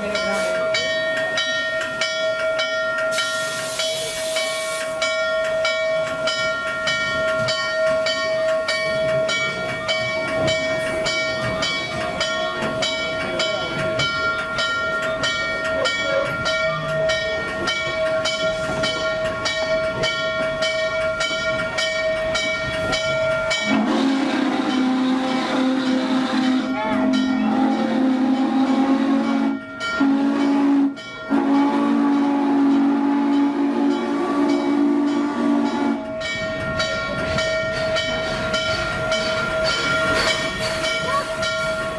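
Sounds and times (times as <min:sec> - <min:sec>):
steam hissing: 0:03.0 - 0:20.1.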